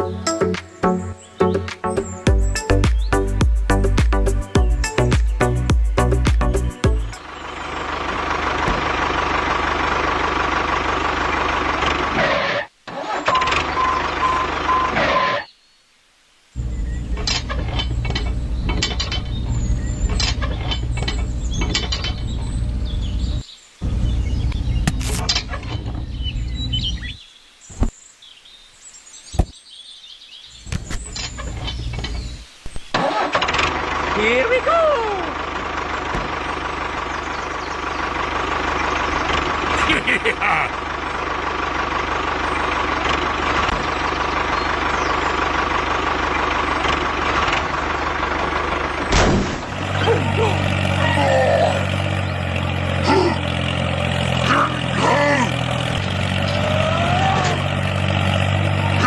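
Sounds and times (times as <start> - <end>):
small tractor engine rumbling: 0.0 - 15.5, 16.6 - 27.9, 30.5 - 59.0
faint bird chirps: 13.2 - 33.0
loud thump: 29.3 - 29.6, 36.1 - 36.3, 49.1 - 49.8.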